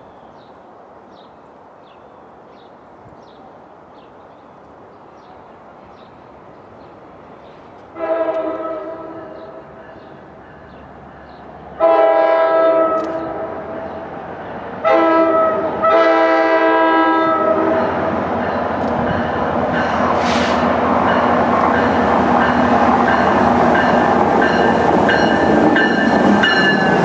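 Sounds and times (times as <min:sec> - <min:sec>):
train rumble and rail noise: 0:00.0 - 0:27.0
locomotive air horn blasts: 0:08.0 - 0:09.6, 0:11.8 - 0:13.7, 0:14.8 - 0:17.8.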